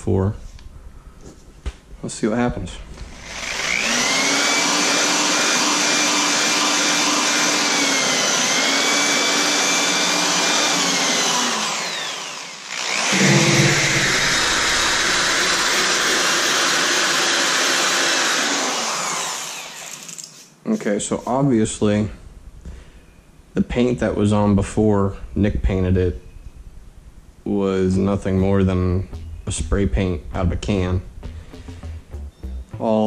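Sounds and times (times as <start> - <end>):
paint stripper motor whine: 3.1 - 16.6.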